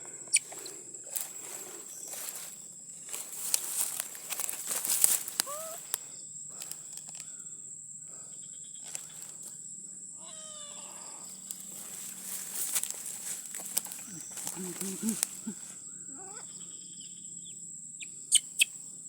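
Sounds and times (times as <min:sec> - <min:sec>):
rustling: 0:01.1 - 0:06.0, 0:11.4 - 0:15.7
small animal crying out: 0:05.4 - 0:05.8, 0:10.2 - 0:11.3, 0:16.1 - 0:16.5.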